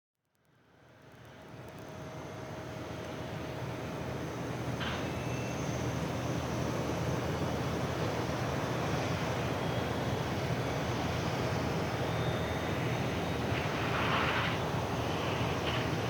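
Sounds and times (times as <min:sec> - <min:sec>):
jet engines rumbling hum: 0:00.7 - 0:16.0
brief rushing hiss: 0:13.4 - 0:16.0.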